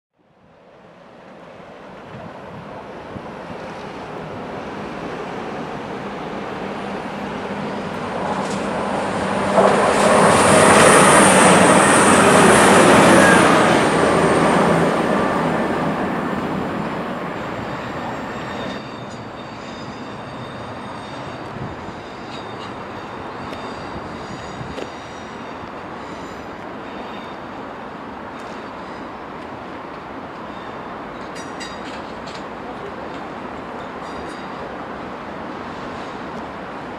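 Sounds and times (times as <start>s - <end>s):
train passing: 0.5s - 36.9s
high squeal: 10.2s - 27.6s.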